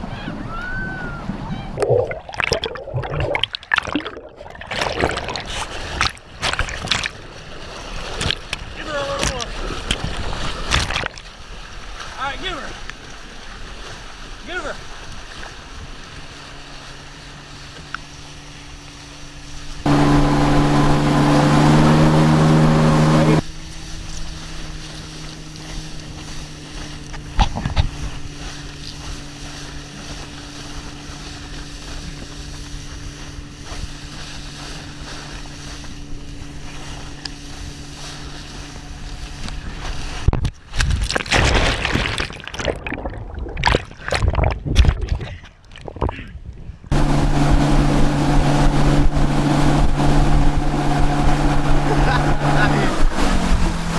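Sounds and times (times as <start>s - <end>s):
boat engine revving: 0.0s - 1.8s, 19.9s - 23.4s, 46.9s - 53.9s
wind noise: 0.0s - 1.8s
rushing water: 0.0s - 3.4s, 19.9s - 23.4s, 46.9s - 53.9s.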